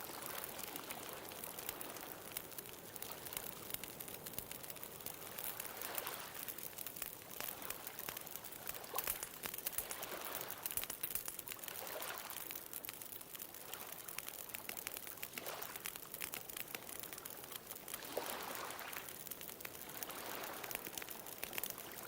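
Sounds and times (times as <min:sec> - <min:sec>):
bonfire crackling: 0:00.0 - 0:22.0
ocean waves: 0:18.0 - 0:19.1, 0:19.9 - 0:20.7.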